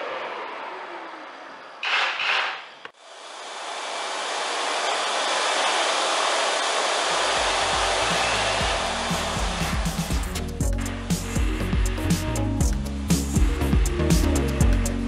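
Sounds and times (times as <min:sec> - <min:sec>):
electric appliance blowing air: 0:03.0 - 0:15.0
background music with bass beat: 0:07.9 - 0:15.0.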